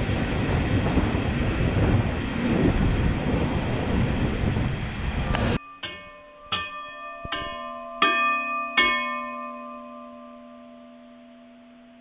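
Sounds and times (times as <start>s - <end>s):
bell-like chime notes: 5.6s - 12.0s.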